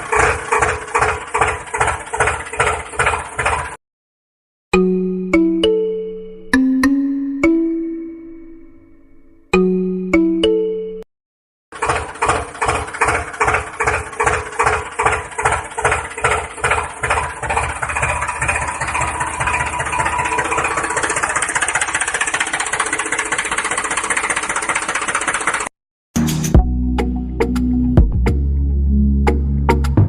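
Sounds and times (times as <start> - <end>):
tractor engine starting and running: 0.0 - 3.8, 11.7 - 30.0.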